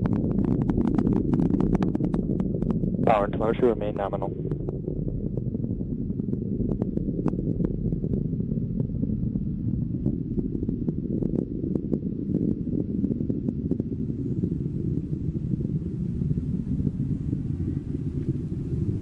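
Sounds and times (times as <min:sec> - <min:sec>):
sharp crackles: 0:00.0 - 0:13.5
rocket engine rumble: 0:00.0 - 0:19.0.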